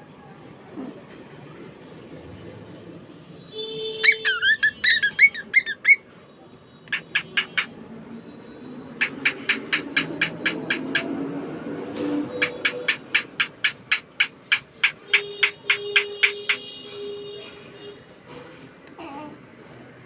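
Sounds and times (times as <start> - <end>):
bird chirping: 4.0 - 6.0, 6.9 - 11.2, 12.2 - 16.7
bird short sharp calls: 4.0 - 6.0.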